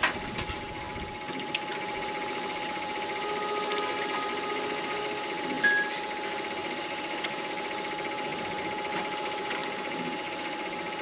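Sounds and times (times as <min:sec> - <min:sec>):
wood lathe motor whine: 0:00.0 - 0:11.0
phone notification beep: 0:05.6 - 0:06.0.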